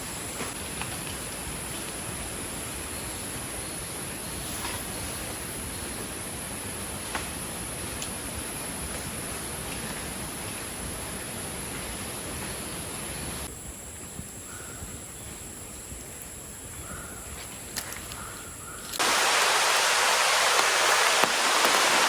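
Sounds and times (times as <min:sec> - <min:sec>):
rushing outdoor ambience: 0:00.0 - 0:14.5, 0:19.0 - 0:22.0
heavy rain: 0:19.0 - 0:22.0.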